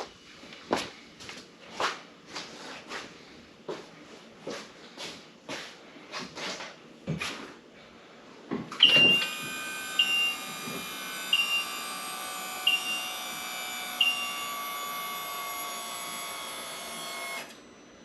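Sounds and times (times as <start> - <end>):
knocks and shuffles: 0.0 - 8.8
short high beeps: 8.8 - 9.3.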